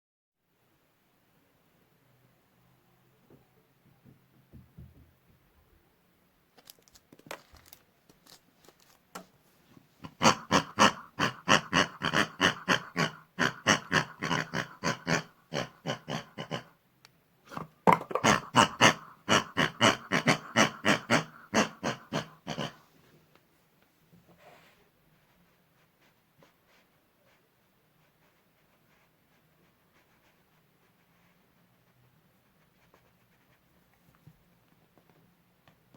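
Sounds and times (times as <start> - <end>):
pig-like oinking: 10.0 - 16.8, 17.5 - 22.9.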